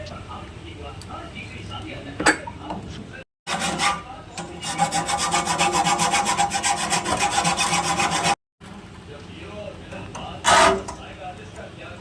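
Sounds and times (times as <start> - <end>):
hand tool rasping metal: 3.5 - 8.4, 10.4 - 10.9.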